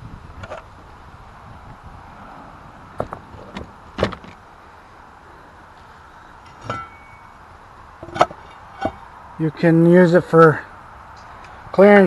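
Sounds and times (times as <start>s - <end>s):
metallic clinks and knocks: 6.4s - 7.4s.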